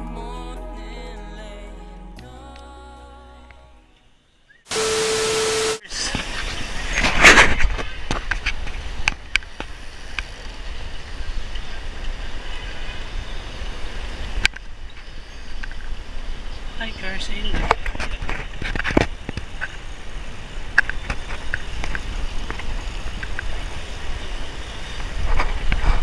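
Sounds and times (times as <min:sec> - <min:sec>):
steady tone over hiss: 0:03.2 - 0:07.1, 0:07.9 - 0:25.9
bicycle road rumble: 0:06.0 - 0:26.0
wind over microphone: 0:17.4 - 0:26.0.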